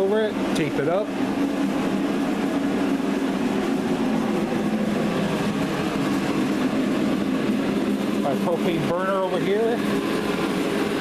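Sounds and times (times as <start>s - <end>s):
heater blowing with low hum: 0.0s - 11.0s.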